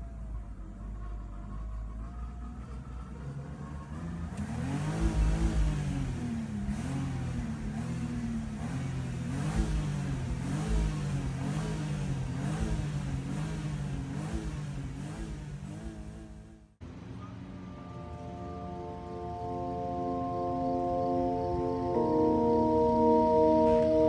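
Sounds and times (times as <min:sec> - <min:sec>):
car engine revving hard: 0:03.6 - 0:16.8.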